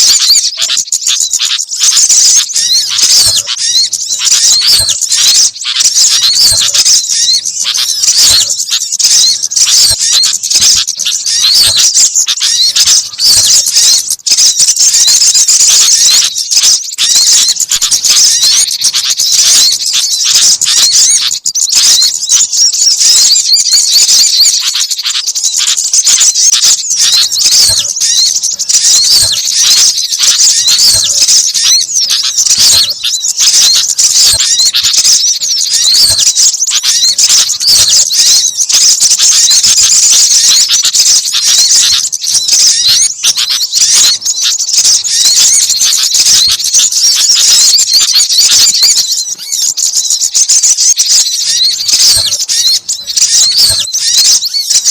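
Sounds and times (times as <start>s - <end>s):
songbirds chirping: 0.0s - 54.9s.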